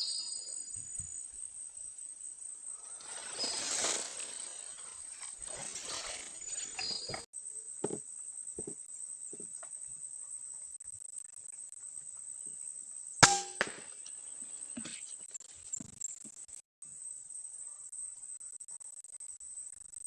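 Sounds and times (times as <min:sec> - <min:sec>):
faint ticks: 0:09.3 - 0:12.6
air rifle shot: 0:13.2 - 0:13.9.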